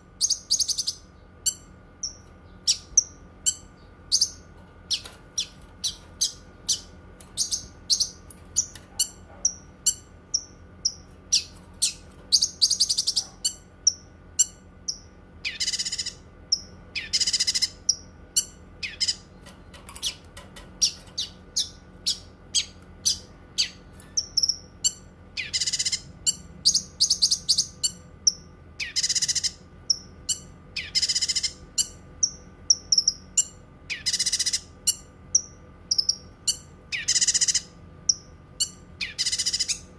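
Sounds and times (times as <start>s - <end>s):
songbird chirping: 0.2s - 20.2s.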